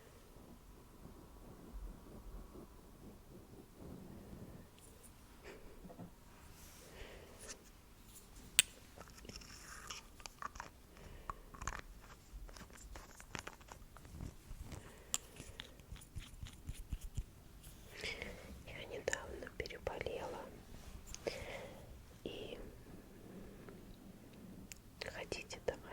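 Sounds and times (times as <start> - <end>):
small clicks taps and crackles: 8.5 - 17.8.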